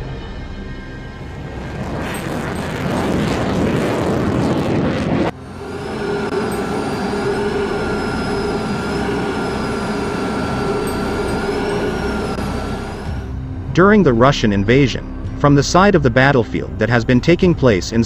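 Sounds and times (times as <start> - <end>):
jet engine whine: 0.0 - 14.6
jet engine roar: 1.1 - 13.7.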